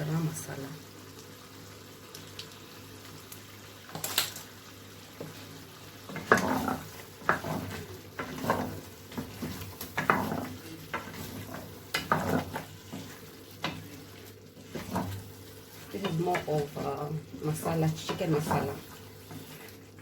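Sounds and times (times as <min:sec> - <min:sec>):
sauce sizzling: 0:00.0 - 0:20.0
spoon scraping a pot: 0:06.1 - 0:16.9.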